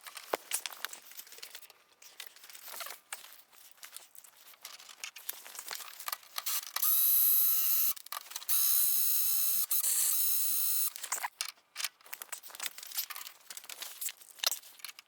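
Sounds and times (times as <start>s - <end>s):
parts rustling and clicking: 0.0s - 6.9s, 8.0s - 8.6s, 10.9s - 15.0s
small electric motor whirring: 6.4s - 11.0s.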